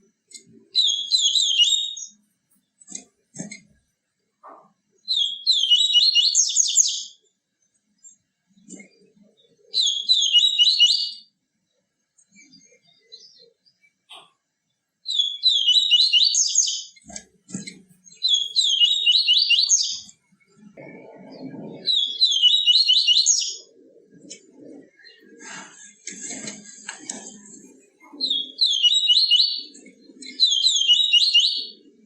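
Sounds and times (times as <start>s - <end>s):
bird singing trilled phrases: 0.7s - 2.2s, 5.0s - 7.2s, 8.0s - 11.3s, 15.0s - 23.8s, 28.0s - 31.9s.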